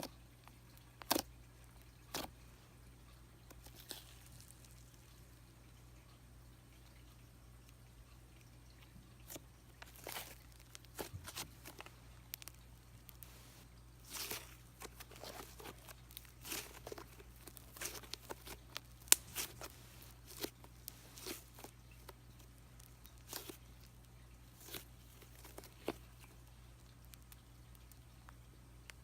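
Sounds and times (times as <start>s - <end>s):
slime squishing and popping: 1.0s - 1.4s, 3.6s - 5.0s, 9.2s - 13.4s, 14.0s - 29.0s.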